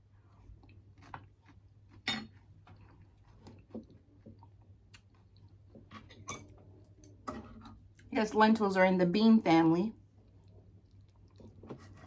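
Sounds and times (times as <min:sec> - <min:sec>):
person chewing: 0:00.1 - 0:06.2, 0:10.2 - 0:11.6.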